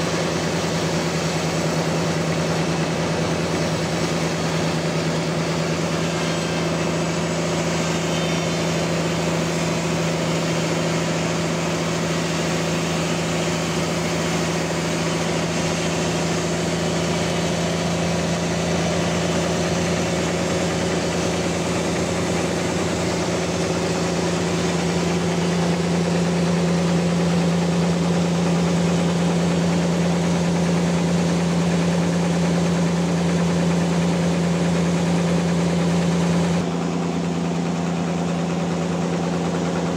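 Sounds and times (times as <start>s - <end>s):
band sawmill running: 0.0s - 39.9s.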